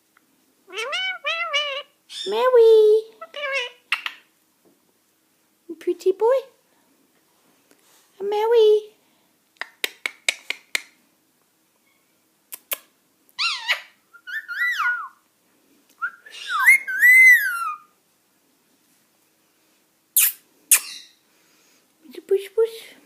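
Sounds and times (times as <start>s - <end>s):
parakeet squawk: 0.7s - 2.4s, 3.2s - 4.2s, 13.4s - 15.1s, 16.3s - 17.9s
parakeet whistles: 13.4s - 15.2s, 16.0s - 17.9s.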